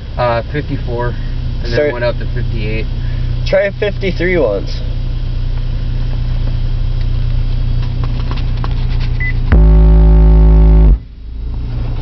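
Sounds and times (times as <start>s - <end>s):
car engine idling: 0.0s - 12.0s
distorted bass test tone: 9.2s - 11.2s.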